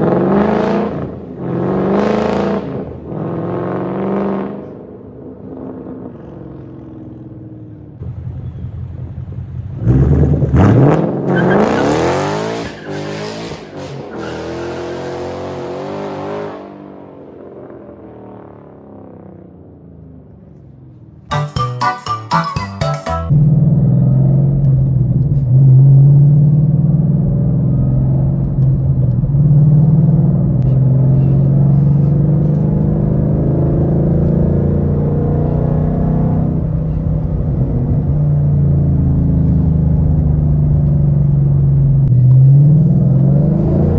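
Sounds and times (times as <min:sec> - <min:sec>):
car engine exhaust revving: 0:08.0 - 0:16.5, 0:23.3 - 0:43.9.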